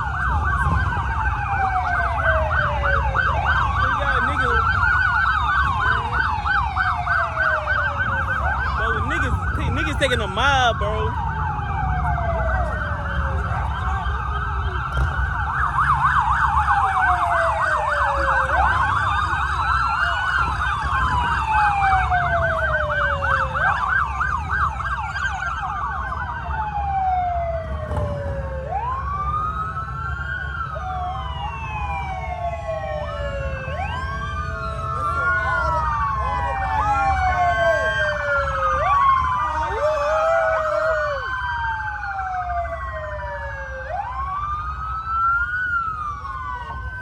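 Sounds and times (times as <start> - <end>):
wailing sirens: 0.0 - 47.0
yelping siren: 0.0 - 47.0.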